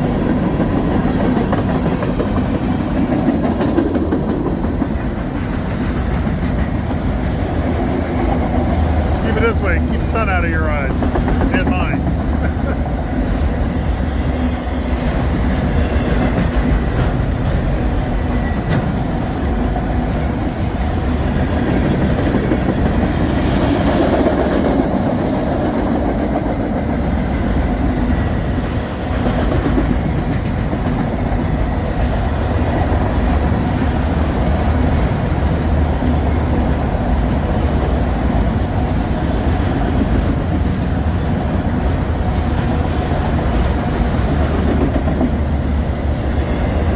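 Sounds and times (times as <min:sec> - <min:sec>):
freight train rumbling on rails: 0:00.0 - 0:46.9.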